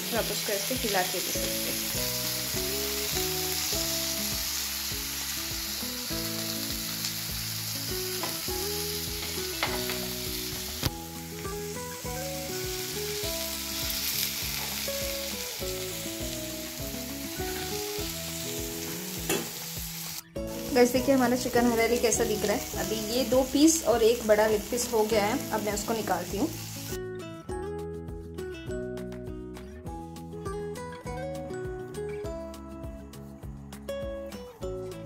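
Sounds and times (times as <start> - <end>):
chicken sizzling in oil: 0.0 - 27.0
soft background music: 0.0 - 35.0.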